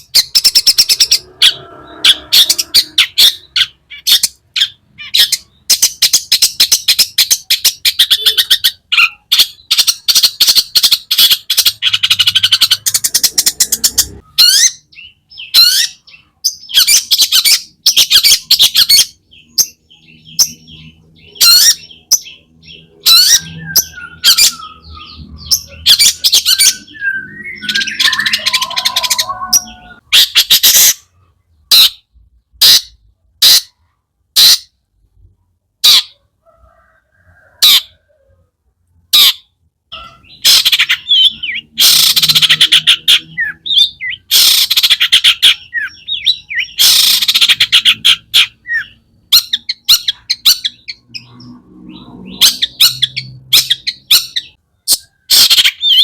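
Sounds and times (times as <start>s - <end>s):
shrike singing harsh chattering: 0.0s - 31.1s.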